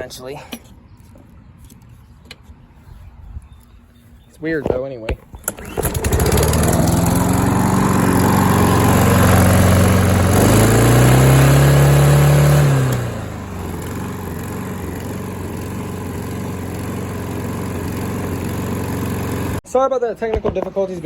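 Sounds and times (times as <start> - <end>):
lawn mower engine revving: 5.3 - 19.6.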